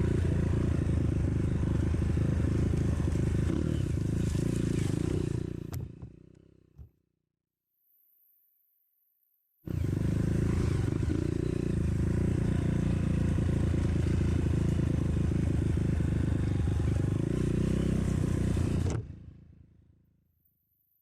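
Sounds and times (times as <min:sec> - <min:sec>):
motorcycle engine running: 0:00.0 - 0:06.9, 0:09.7 - 0:19.8.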